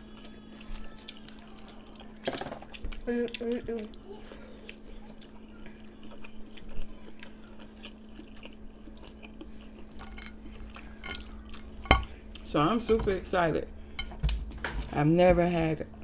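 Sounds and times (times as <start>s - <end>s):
person chewing food: 0.0s - 12.5s.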